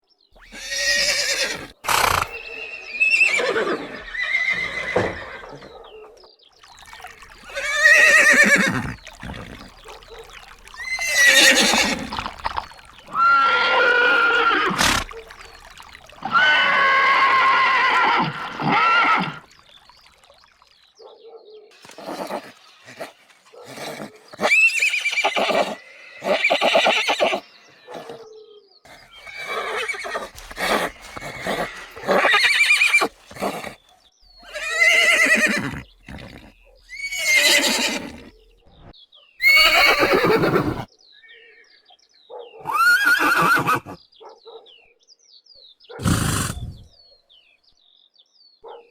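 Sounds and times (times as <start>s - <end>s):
horses neighing: 0.4s - 5.8s, 6.8s - 19.6s, 21.8s - 28.2s, 28.9s - 33.8s, 34.4s - 38.5s, 39.4s - 40.9s, 42.6s - 44.0s, 46.0s - 46.9s.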